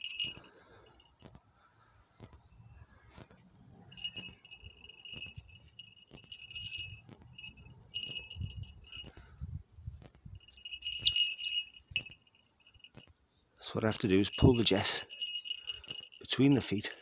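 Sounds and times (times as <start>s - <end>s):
small bell jingling: 0.0s - 1.2s, 3.9s - 9.2s, 10.3s - 13.1s, 13.9s - 17.0s
soft rustling and handling noise: 0.0s - 1.5s, 3.1s - 9.4s, 10.0s - 16.8s.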